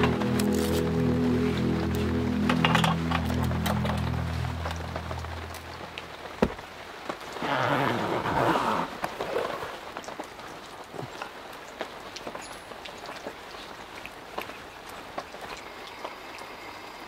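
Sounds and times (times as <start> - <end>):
rain falling on wet ground: 0.0 - 17.0.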